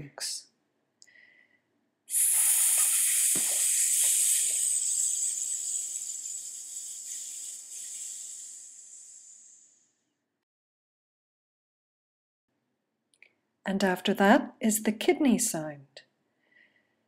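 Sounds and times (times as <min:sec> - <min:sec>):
person hissing with breath: 0:02.1 - 0:09.9.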